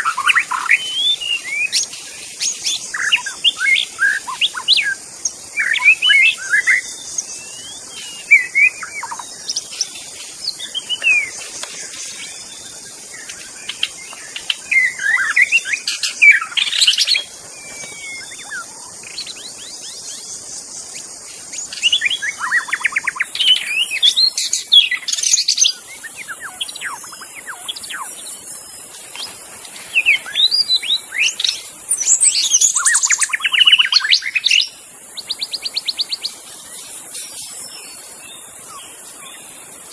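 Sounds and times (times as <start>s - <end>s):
bird singing whistled phrases: 0.0s - 5.0s, 5.6s - 9.9s, 14.6s - 20.2s, 21.6s - 28.4s, 29.9s - 39.5s
steady high hiss: 0.0s - 39.9s.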